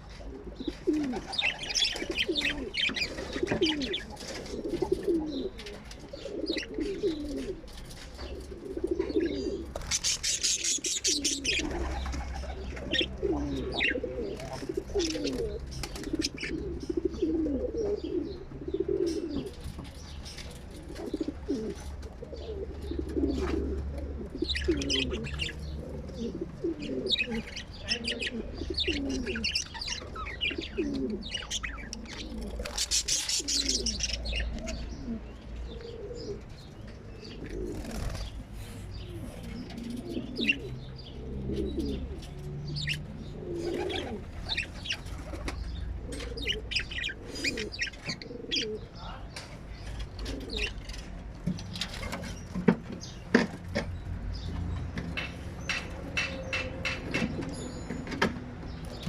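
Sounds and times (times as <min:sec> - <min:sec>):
parrots chirping: 0:09.8 - 0:15.4, 0:24.4 - 0:25.8, 0:26.8 - 0:35.0, 0:42.7 - 0:45.4
low cooing: 0:12.6 - 0:19.5, 0:21.0 - 0:32.7, 0:43.2 - 0:44.3.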